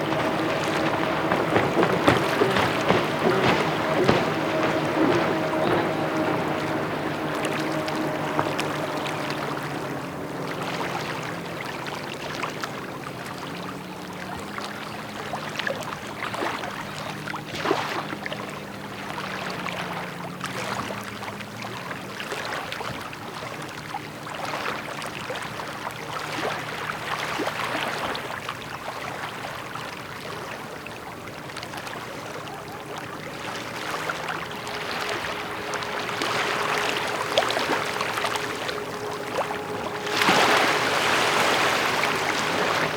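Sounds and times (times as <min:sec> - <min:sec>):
rain falling: 0:00.0 - 0:10.5, 0:33.6 - 0:42.9.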